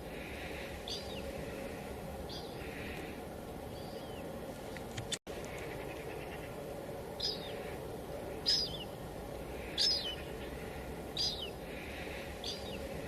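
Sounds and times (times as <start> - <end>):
bird chirping: 0.3 - 3.1, 3.7 - 4.3, 7.2 - 9.0, 9.6 - 13.0.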